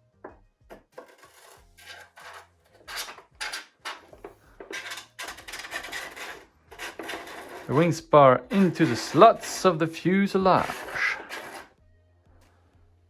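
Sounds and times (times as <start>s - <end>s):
model parts rubbing and scraping: 0.8s - 11.8s.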